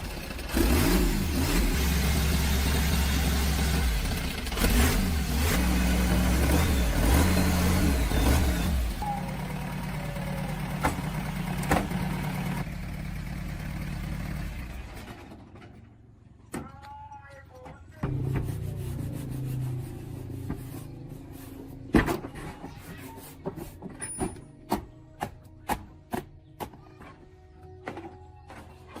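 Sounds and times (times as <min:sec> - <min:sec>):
diesel truck engine running: 0:00.0 - 0:15.6, 0:18.0 - 0:22.4.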